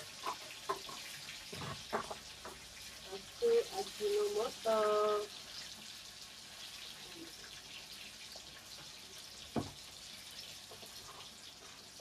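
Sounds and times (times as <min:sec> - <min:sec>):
food sizzling in hot oil: 0:00.0 - 0:12.0
oil crackling and popping: 0:00.0 - 0:12.0.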